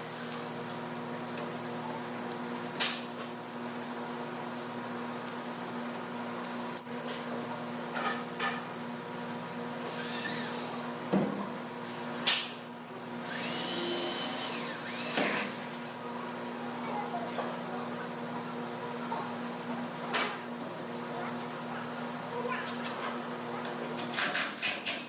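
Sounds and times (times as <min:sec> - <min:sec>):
steady machine hum: 0:00.0 - 0:24.0
power tool whirring: 0:09.8 - 0:10.8, 0:13.2 - 0:15.7.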